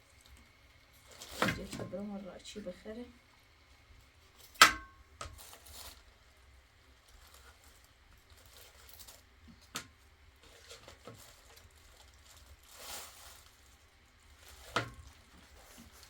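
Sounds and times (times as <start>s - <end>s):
rustling handling noises: 0.0s - 3.0s, 3.6s - 16.0s.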